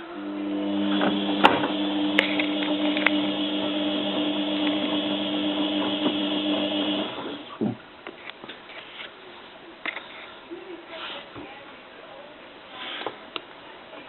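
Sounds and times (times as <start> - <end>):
washing machine drum motor: 0.0 - 7.5.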